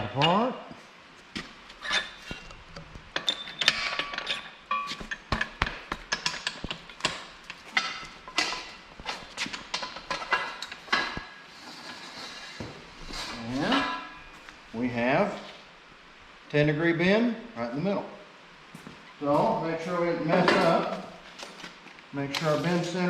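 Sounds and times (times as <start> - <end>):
metal parts clanking: 1.8 - 12.5.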